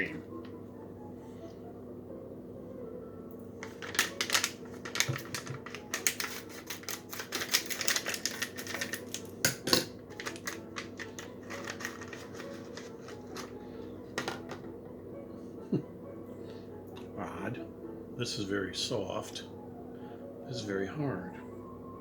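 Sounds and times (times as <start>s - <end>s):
wrapper crinkling: 3.6s - 9.4s, 10.1s - 13.6s.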